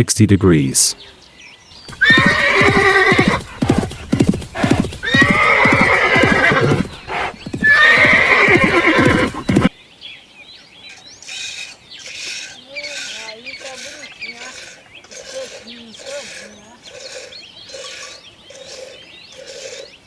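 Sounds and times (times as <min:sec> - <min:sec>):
sheep bleating: 0:01.9 - 0:03.8.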